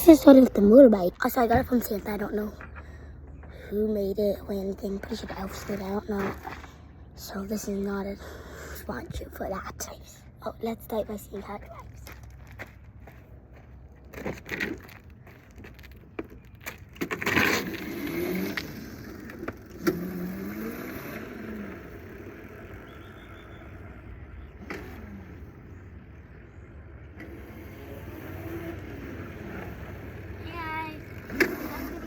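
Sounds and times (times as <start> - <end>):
toy motorbike motor whining: 17.1 - 26.2, 27.1 - 32.0.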